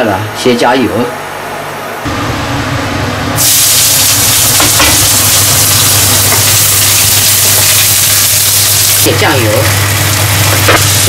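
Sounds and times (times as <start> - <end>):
scallions sizzling in hot oil: 3.4 - 11.0.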